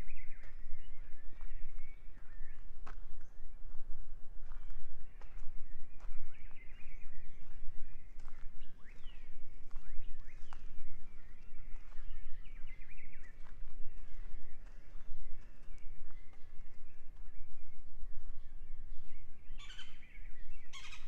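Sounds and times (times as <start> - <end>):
birds chirping: 4.4 - 21.0.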